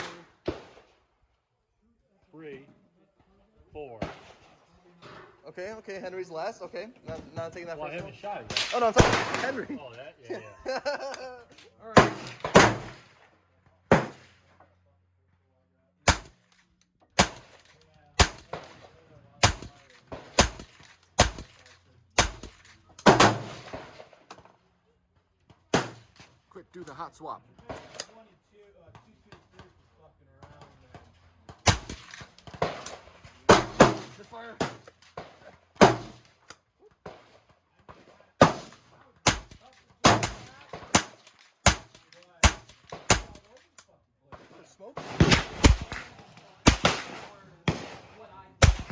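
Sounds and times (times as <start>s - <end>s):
rifle shots cracking with echo: 0.0s - 0.9s, 8.4s - 9.8s, 11.9s - 13.2s, 13.9s - 14.5s, 16.0s - 16.4s, 17.2s - 24.3s, 25.7s - 26.3s, 31.5s - 36.4s, 37.0s - 43.5s, 44.4s - 48.9s.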